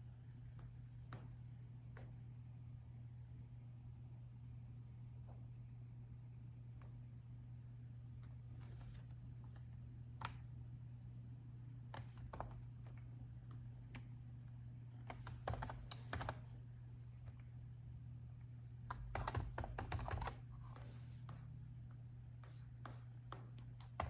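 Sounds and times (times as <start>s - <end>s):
steady low hum: 0.0s - 24.0s
typing on laptop keyboard: 12.0s - 12.8s, 15.0s - 16.4s, 18.9s - 20.5s.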